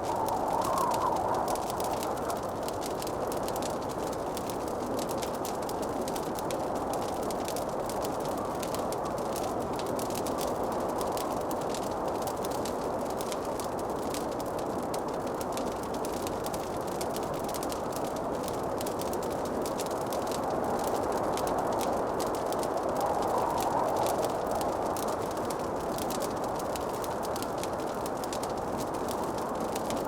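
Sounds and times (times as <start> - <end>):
wood fire crackling: 0.0 - 30.0
steady rushing noise: 22.3 - 25.9.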